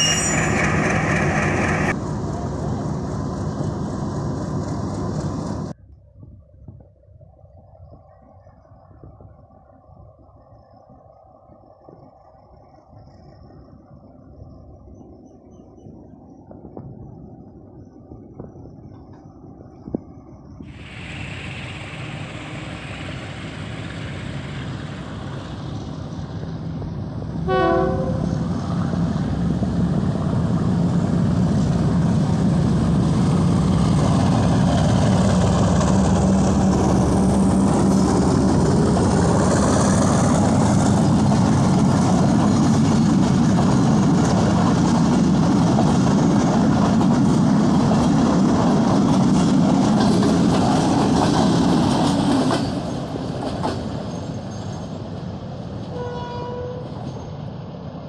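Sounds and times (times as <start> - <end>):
diesel locomotive engine rumble: 0.0 - 58.0
train horn blast: 27.4 - 28.4, 55.9 - 56.9
wheels clattering on rails: 28.4 - 56.0.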